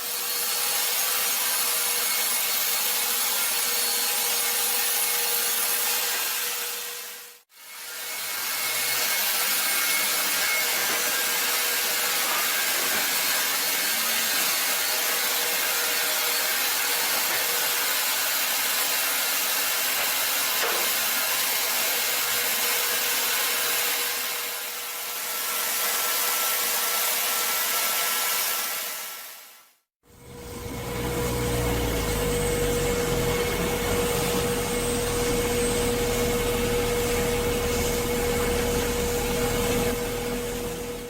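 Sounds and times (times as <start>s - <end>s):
power saw cutting timber: 0.0s - 29.3s, 30.1s - 41.0s.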